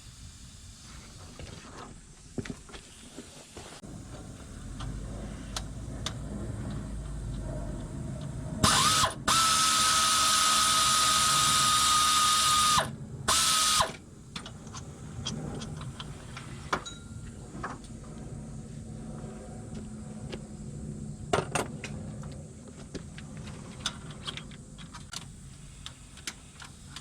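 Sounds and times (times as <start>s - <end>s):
power tool whining: 3.8s - 14.0s.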